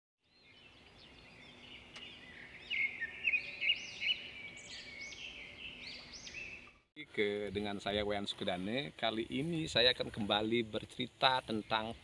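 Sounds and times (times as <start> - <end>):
birds chirping and singing: 0.2 - 6.9, 11.3 - 12.0
steady high hiss: 7.0 - 12.0.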